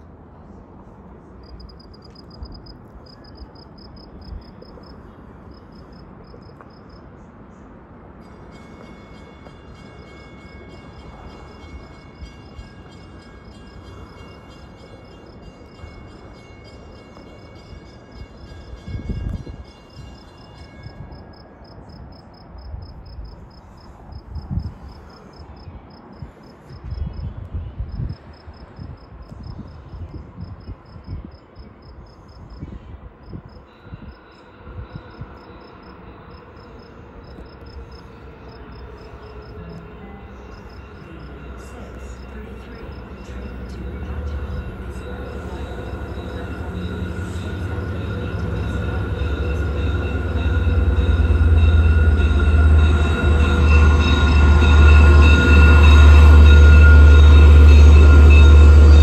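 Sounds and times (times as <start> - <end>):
train engine drone: 0.0 - 59.0
wind buffeting microphone: 26.2 - 31.8
insects chirping: 34.4 - 59.0
high ringing tones: 38.6 - 59.0.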